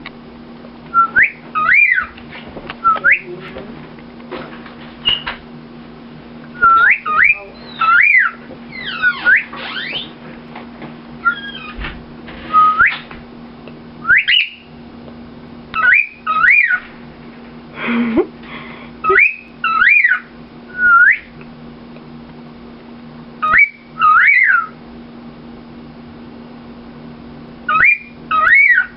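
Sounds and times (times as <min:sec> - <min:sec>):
steady low hum: 0:00.0 - 0:28.9
cockatiel whistling: 0:00.9 - 0:02.1, 0:02.8 - 0:03.3, 0:05.0 - 0:05.3, 0:06.5 - 0:10.2, 0:11.2 - 0:11.8, 0:12.5 - 0:13.0, 0:14.0 - 0:14.7, 0:15.8 - 0:16.8, 0:19.0 - 0:21.3, 0:23.4 - 0:24.8, 0:27.7 - 0:28.9.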